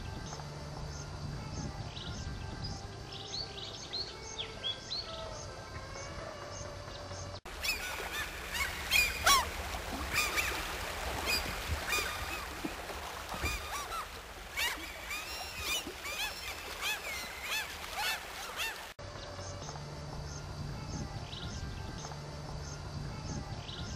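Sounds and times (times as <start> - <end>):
faint birdsong: 0.0 - 23.9
flock of birds calling: 7.5 - 19.0.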